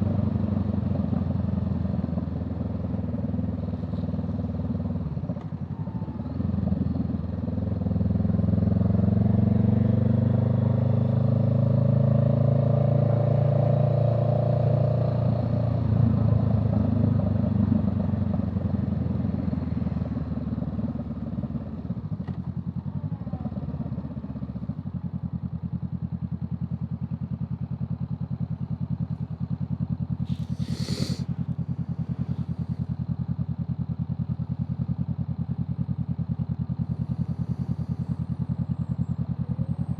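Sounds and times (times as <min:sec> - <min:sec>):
vehicle engine revving: 0:30.3 - 0:32.8.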